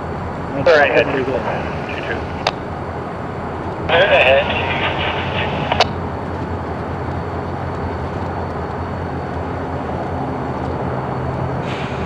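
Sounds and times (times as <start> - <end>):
diesel locomotive rumbling: 0.0 - 12.0
radio click: 3.9 - 6.0.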